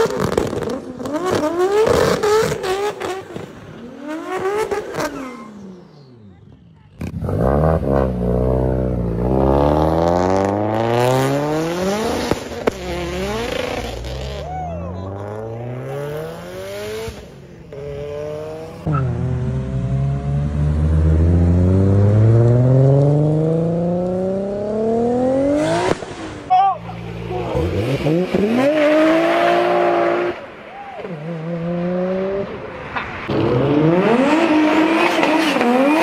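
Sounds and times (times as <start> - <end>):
car engine accelerating hard: 7.0 - 30.4.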